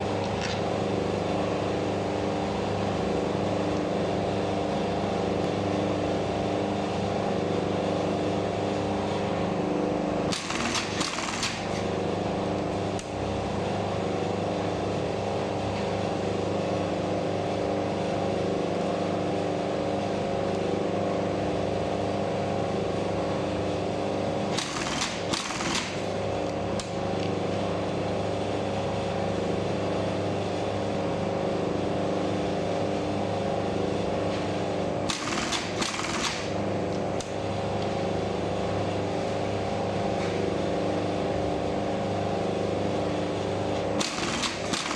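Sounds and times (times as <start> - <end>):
sewing machine stitching: 10.3 - 11.9, 24.5 - 26.1, 35.1 - 36.6, 44.0 - 44.9
sewing machine motor humming: 10.3 - 12.0, 24.5 - 26.2, 35.0 - 36.6, 44.0 - 44.9.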